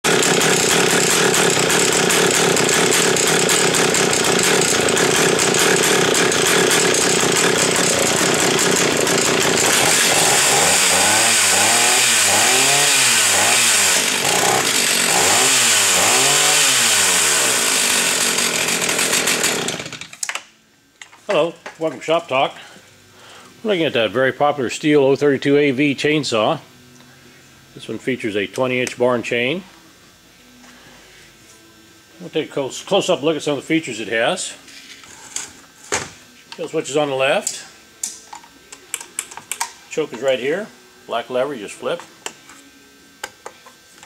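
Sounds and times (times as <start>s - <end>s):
chainsaw revving: 0.1s - 20.1s.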